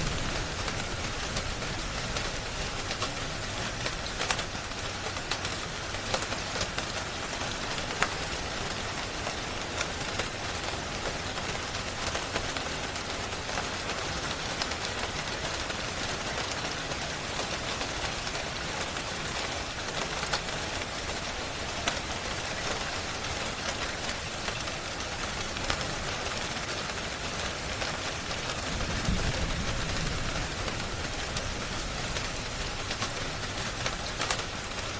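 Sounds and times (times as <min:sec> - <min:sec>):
wood fire crackling and popping: 0:00.0 - 0:13.1, 0:18.1 - 0:34.9
steady rain falling: 0:00.0 - 0:34.9.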